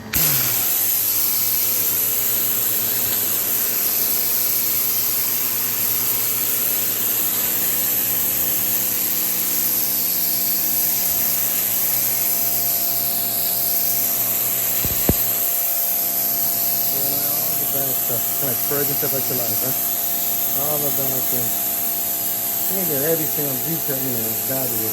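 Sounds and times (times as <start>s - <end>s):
motor hum: 0.0s - 24.9s
pressure washer water jet hissing: 0.0s - 24.9s
sharp click: 14.7s - 15.6s.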